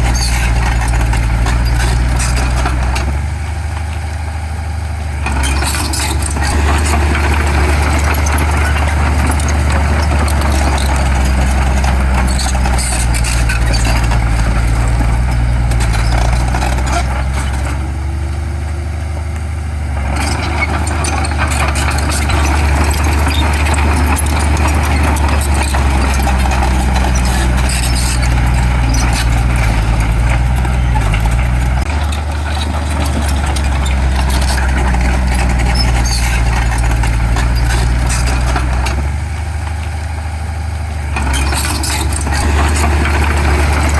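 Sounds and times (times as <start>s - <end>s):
diesel machinery engine drone: 0.0s - 43.9s
metallic clanks: 20.1s - 39.1s.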